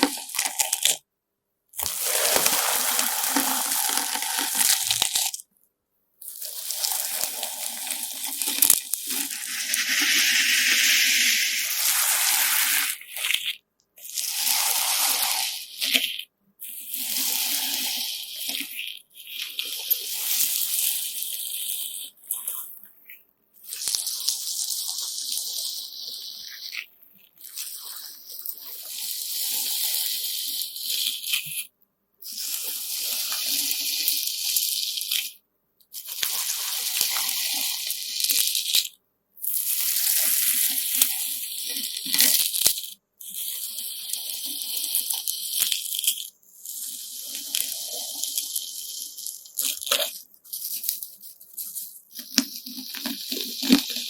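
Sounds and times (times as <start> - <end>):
gritty slime squishing by hand: 1.8 - 5.4.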